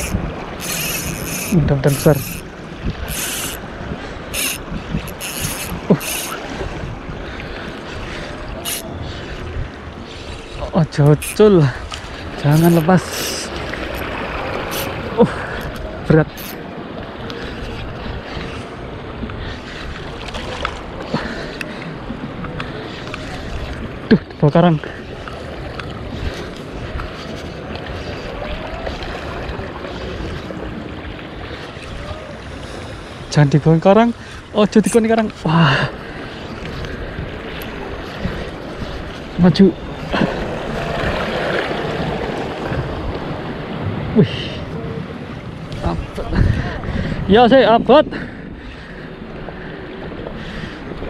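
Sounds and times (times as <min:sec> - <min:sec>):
fishing reel spinning: 0:00.0 - 0:06.4, 0:08.6 - 0:08.9, 0:11.1 - 0:11.6, 0:12.5 - 0:15.0, 0:15.6 - 0:16.6
waves washing: 0:00.0 - 0:51.0
wind: 0:00.0 - 0:51.0.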